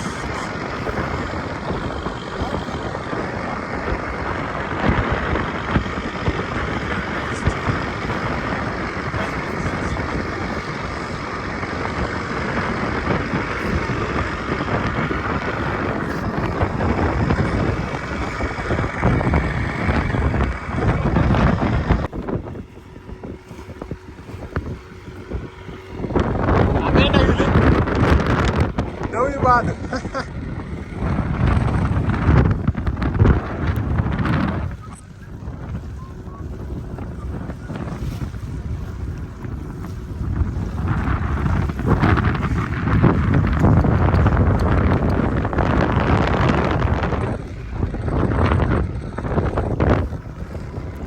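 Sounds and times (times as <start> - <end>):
boat rushing through water: 0.0 - 51.0
wind buffeting microphone: 0.0 - 51.0.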